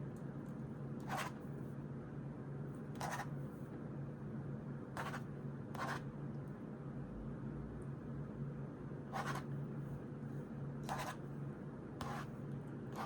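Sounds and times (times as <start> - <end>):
steady low hum: 0.0 - 13.0
paper scratching on a desk: 3.0 - 3.3, 5.0 - 6.0, 9.1 - 9.5, 10.9 - 11.2, 12.0 - 12.3.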